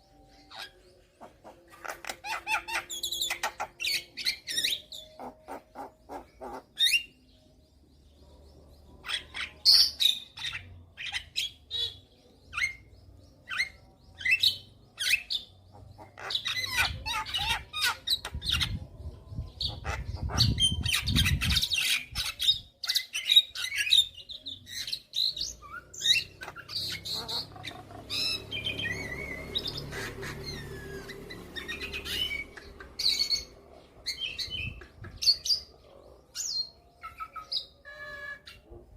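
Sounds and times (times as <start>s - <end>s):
rapid bird chatter: 0.0s - 4.2s, 4.8s - 7.2s, 14.5s - 18.8s, 19.5s - 22.4s, 24.7s - 36.6s
myna bird calls: 0.5s - 7.2s, 14.3s - 18.8s, 24.8s - 38.7s.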